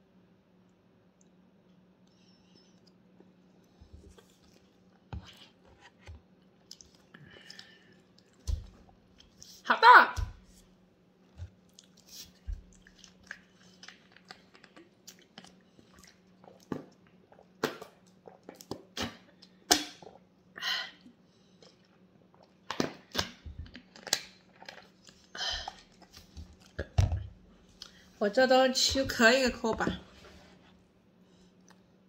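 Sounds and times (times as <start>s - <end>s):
faint steady hum: 0.0s - 32.0s
chewing and lip smacks: 2.7s - 5.1s, 6.5s - 9.5s, 11.3s - 20.2s.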